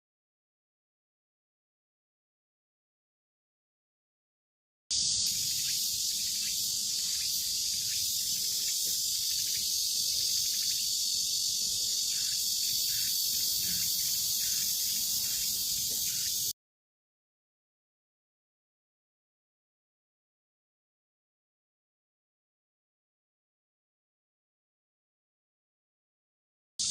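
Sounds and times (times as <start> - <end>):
insects chirping chorus: 4.9 - 16.5.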